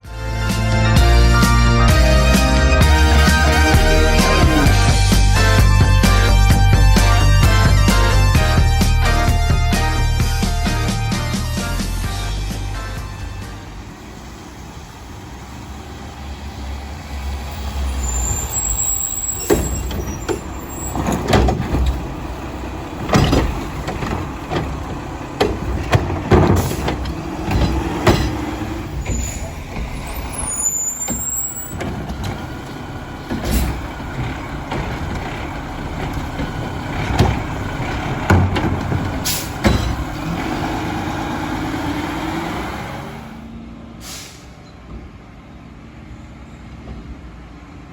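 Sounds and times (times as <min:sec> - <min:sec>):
garbage truck engine running: 0:00.0 - 0:43.6
brief squeals: 0:17.8 - 0:21.3, 0:29.0 - 0:31.8
sharp bangs and clatters: 0:19.4 - 0:40.4
air brake hisses: 0:39.2 - 0:39.6, 0:44.0 - 0:44.8.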